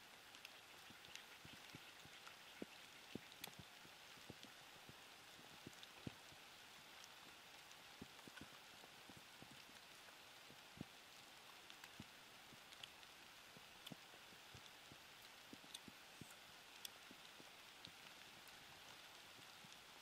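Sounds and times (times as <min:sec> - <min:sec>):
quiet hiss: 0:00.0 - 0:20.0
soft chewing crunches: 0:00.3 - 0:04.6, 0:07.0 - 0:18.6.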